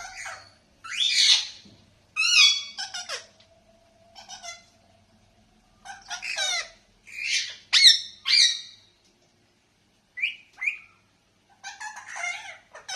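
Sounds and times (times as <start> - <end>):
parakeet squawks and chirps: 0.0 - 1.6, 2.2 - 3.4, 4.1 - 4.8, 5.8 - 8.8, 10.2 - 12.9.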